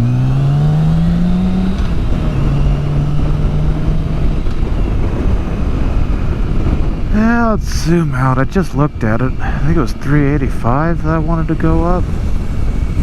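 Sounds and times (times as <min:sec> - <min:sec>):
motorcycle engine pulling away: 0:00.0 - 0:05.6
wind noise: 0:00.0 - 0:13.0.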